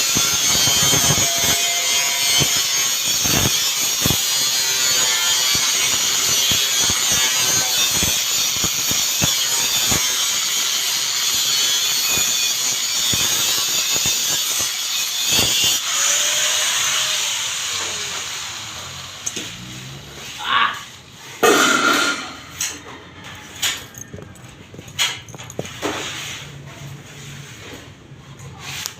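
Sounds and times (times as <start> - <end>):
cutting tool hissing: 0.0 - 22.5.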